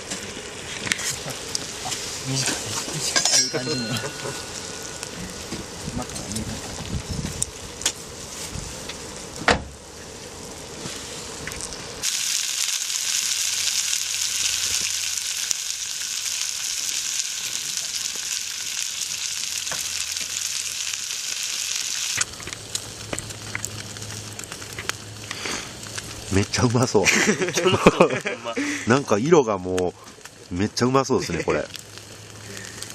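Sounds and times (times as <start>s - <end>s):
campfire crackling: 0.0s - 32.9s
food sizzling in a pan: 0.0s - 32.9s.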